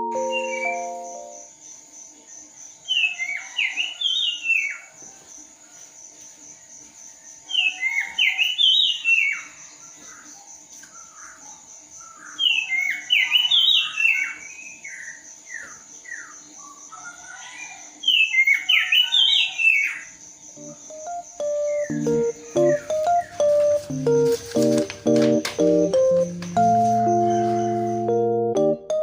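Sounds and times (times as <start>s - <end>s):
music: 0.0s - 1.4s, 20.6s - 29.0s
songbird whistling: 0.0s - 1.4s, 20.6s - 23.5s
faint high-pitched hum: 20.5s - 24.3s.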